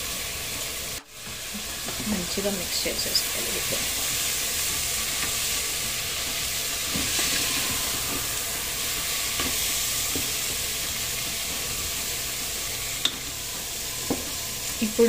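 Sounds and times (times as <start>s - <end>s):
rice and vegetables sizzling: 0.0s - 15.0s
spatula stirring and scraping: 3.7s - 14.8s.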